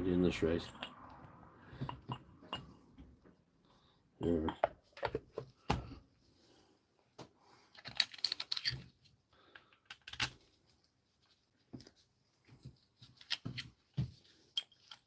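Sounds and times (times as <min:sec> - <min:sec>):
metal parts clicking and clinking: 0:07.7 - 0:08.9, 0:14.5 - 0:15.0.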